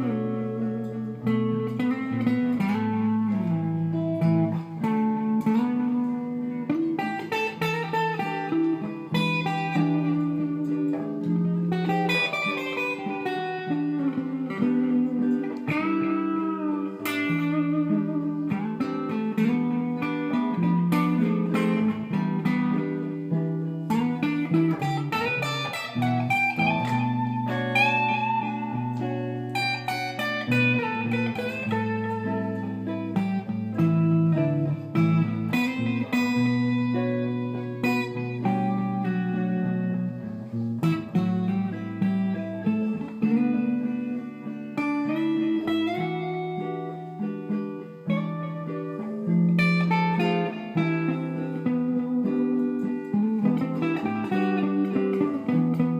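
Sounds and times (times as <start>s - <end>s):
electric guitar blues melody: 0.0s - 55.9s.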